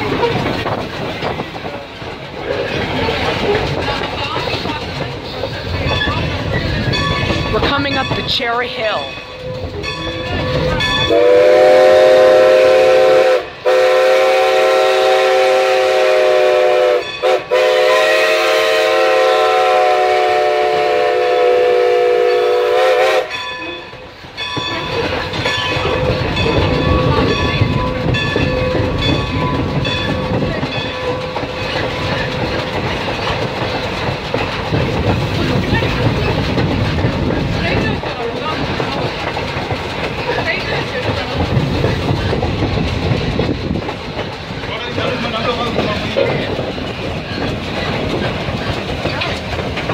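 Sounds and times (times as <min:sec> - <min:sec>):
train wheels rumbling on rails: 0:00.0 - 0:49.9
steam locomotive chime whistle: 0:06.9 - 0:30.2.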